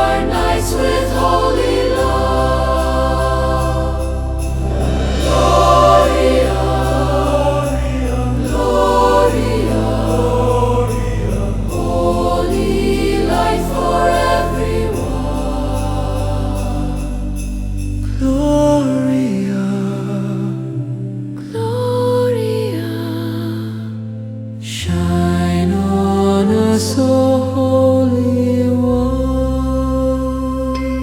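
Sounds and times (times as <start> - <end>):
wordless choir singing: 0.0 - 18.4, 24.7 - 31.0
held bass notes: 0.0 - 18.6.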